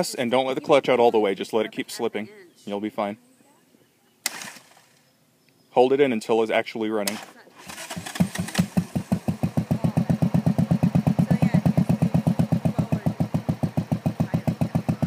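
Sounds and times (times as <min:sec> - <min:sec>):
motorcycle engine idling: 0:07.0 - 0:15.0.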